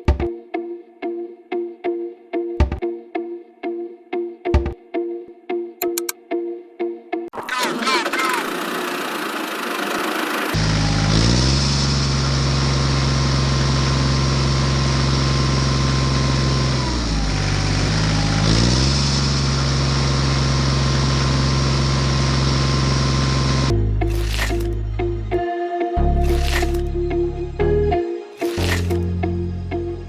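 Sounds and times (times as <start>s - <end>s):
engine running and revving: 7.5s - 24.8s, 26.2s - 26.9s, 28.4s - 29.1s.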